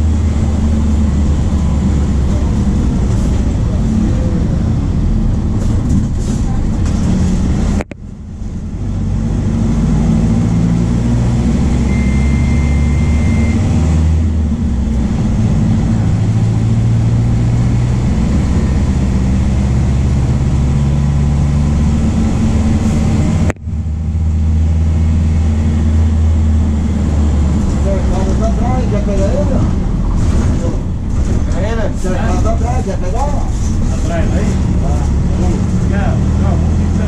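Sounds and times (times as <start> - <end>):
diesel bus engine under load: 0.0 - 37.0
short steady beep: 11.8 - 13.7.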